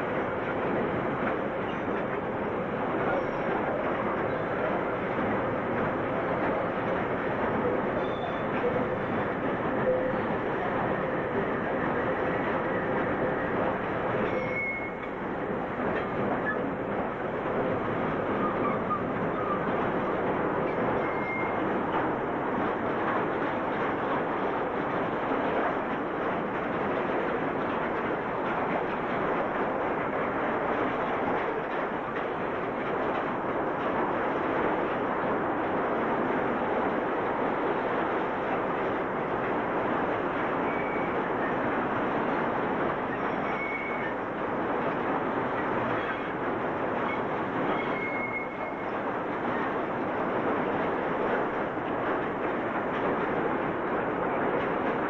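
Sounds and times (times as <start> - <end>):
train wagons rumbling on rails: 0.0 - 55.0
high wheel squeals: 14.3 - 15.1, 21.0 - 21.6, 43.2 - 44.2, 47.1 - 48.8.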